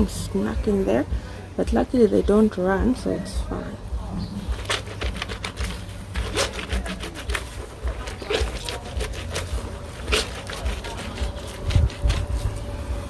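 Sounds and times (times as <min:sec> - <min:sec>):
clothes scrubbed in soapy water: 0:04.4 - 0:13.0.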